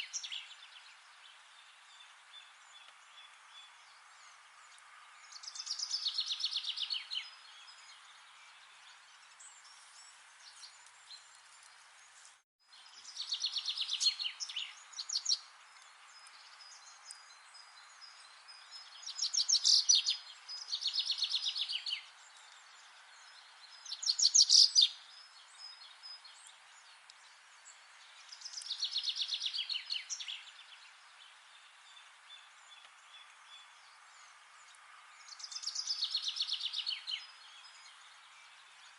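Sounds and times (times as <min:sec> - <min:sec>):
steady background hiss: 0:00.0 - 0:38.9
songbird trilling: 0:23.9 - 0:25.0.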